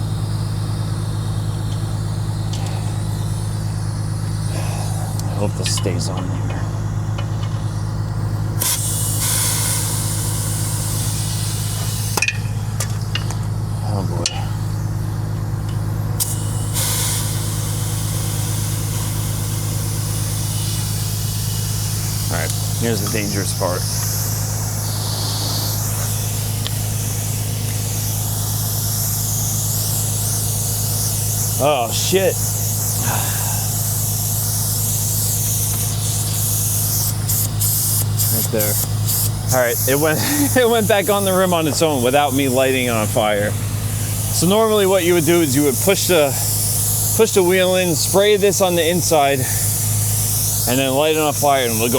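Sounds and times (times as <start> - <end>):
diesel engine idling: 0.0 - 51.9
hiss of escaping gas: 16.2 - 51.9.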